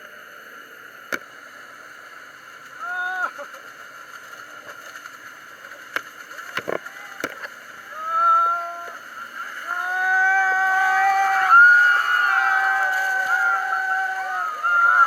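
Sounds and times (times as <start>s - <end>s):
motorboat running: 0.0s - 15.0s
people shouting and whooping: 2.8s - 3.4s, 7.8s - 15.0s.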